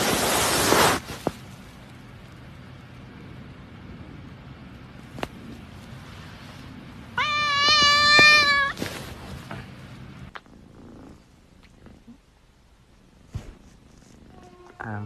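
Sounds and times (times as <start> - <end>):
cat meowing: 7.2 - 8.8.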